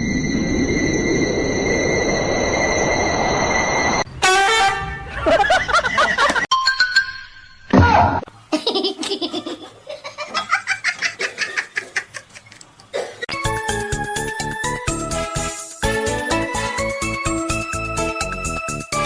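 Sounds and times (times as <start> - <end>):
music: 13.3 - 19.0.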